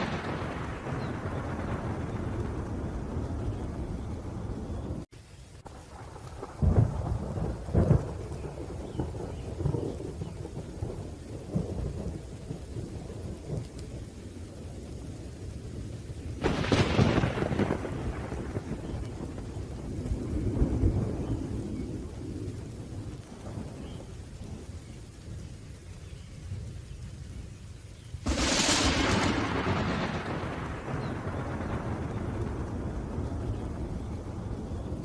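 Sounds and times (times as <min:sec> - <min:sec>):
sharp thunderclap: 0:00.0 - 0:05.1, 0:05.8 - 0:13.8, 0:16.4 - 0:24.6, 0:28.2 - 0:35.0
low thunder rumble: 0:00.0 - 0:35.0
steady rain: 0:00.0 - 0:35.0.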